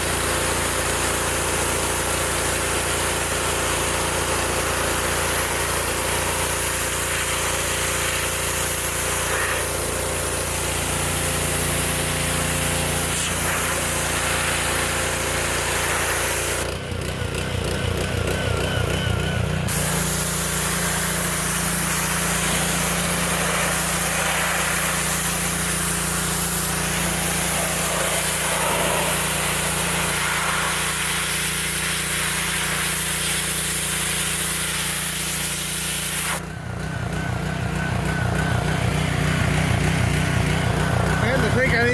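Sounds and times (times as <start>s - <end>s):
wand hissing spraying water: 0.0s - 16.6s, 19.7s - 36.4s
pressure washer engine running: 0.0s - 41.9s.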